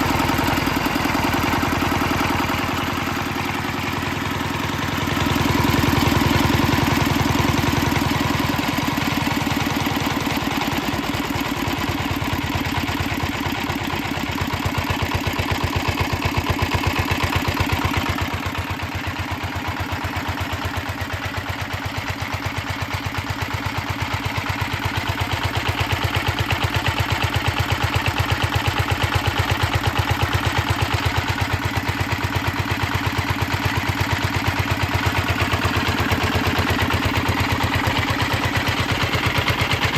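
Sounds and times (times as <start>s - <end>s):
stationary engine running slowly: 0.0s - 39.9s.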